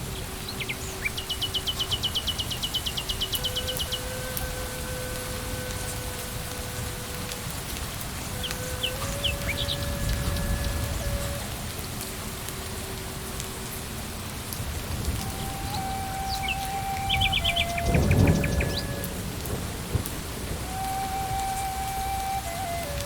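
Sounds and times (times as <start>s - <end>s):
rain on leaves and ground: 0.0s - 23.0s
bird chirping: 0.1s - 4.4s, 8.3s - 11.4s, 15.2s - 19.1s.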